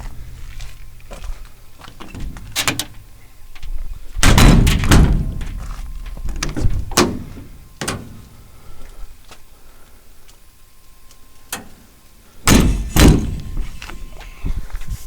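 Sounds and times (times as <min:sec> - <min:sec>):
metal compartment doors shutting: 0:01.9 - 0:03.2, 0:04.2 - 0:08.3, 0:11.5 - 0:11.8, 0:12.5 - 0:13.7
latch clicks: 0:02.0 - 0:03.0
metal door bangs: 0:02.0 - 0:03.1, 0:04.2 - 0:08.2, 0:12.5 - 0:13.6.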